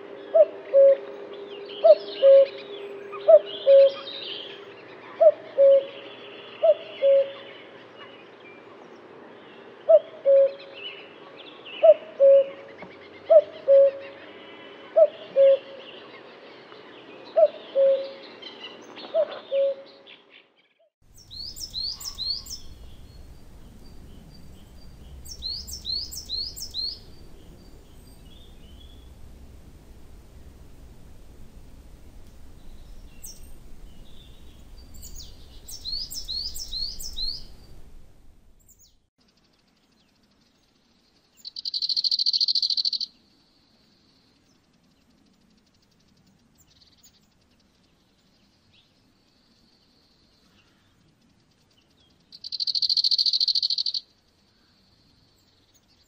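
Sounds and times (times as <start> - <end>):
high-pitched chirping trills: 21.2 - 29.2, 32.7 - 37.7, 41.5 - 43.1, 52.4 - 54.0
low rumble: 21.2 - 38.7.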